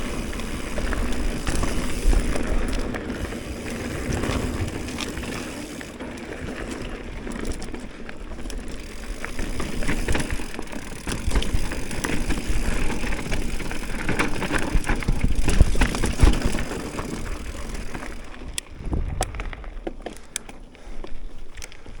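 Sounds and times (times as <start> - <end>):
bike knocks and rattles: 0.0 - 18.3
bike tyres crunching over ground: 0.0 - 22.0
wind rumble on microphone: 17.2 - 19.9.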